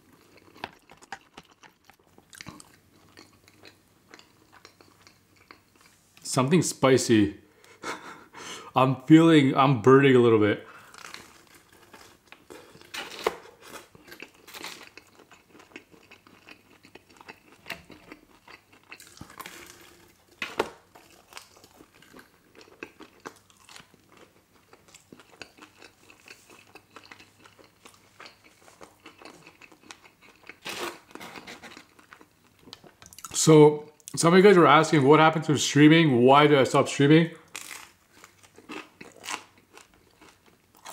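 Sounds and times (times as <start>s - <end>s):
close-miked chewing: 0.0s - 6.0s, 10.8s - 33.3s, 37.5s - 40.9s.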